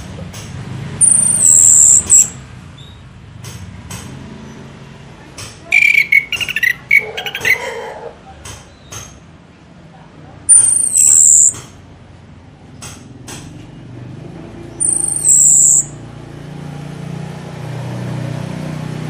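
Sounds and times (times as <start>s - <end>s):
high thin bird whistle: 1.0s - 2.4s, 5.7s - 7.6s, 10.5s - 11.6s, 14.8s - 16.0s
bird chirps and trills: 1.0s - 3.0s, 5.7s - 7.9s, 10.5s - 11.7s, 14.7s - 16.0s.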